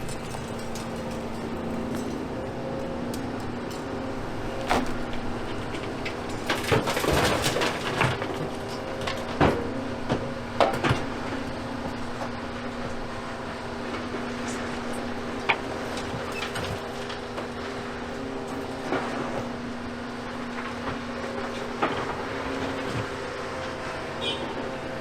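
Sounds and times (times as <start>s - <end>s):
rubble knocking and clattering: 0.0s - 3.9s, 4.5s - 12.4s, 14.0s - 19.8s
excavator diesel engine humming: 0.0s - 25.0s.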